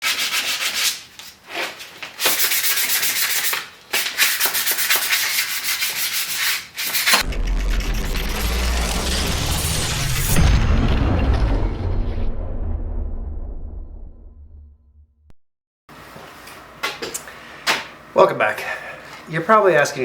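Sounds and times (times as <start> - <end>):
deep booming sound: 7.2 - 15.3.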